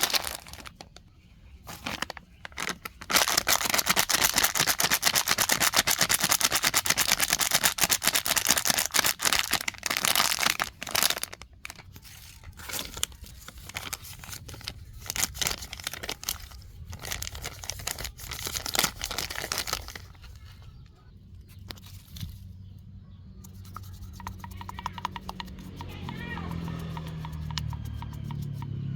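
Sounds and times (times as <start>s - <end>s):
plastic trash crinkling: 0.0s - 20.6s.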